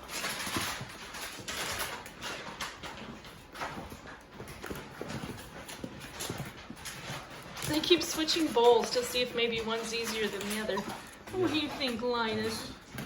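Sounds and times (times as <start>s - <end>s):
puppies eating kibble: 0.0s - 13.0s.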